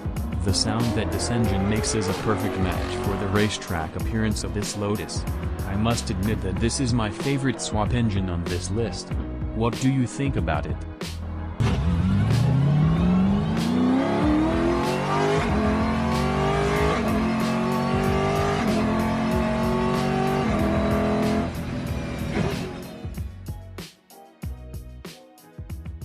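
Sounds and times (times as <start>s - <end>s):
background music with steady beat: 0.0s - 26.0s
sports car accelerating hard: 0.1s - 4.0s, 11.6s - 23.0s.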